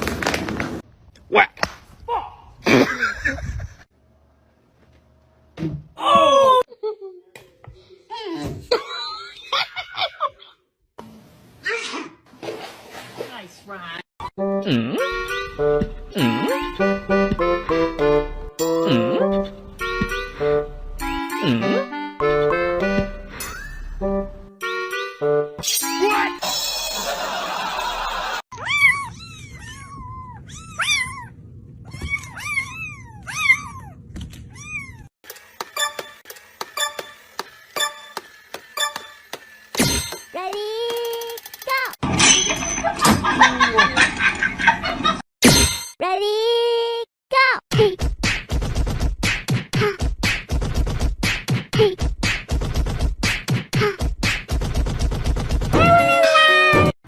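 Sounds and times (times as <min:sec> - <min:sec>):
cat meowing: 0:28.6 - 0:35.1
beatbox-style percussive beat: 0:49.2 - 0:54.6.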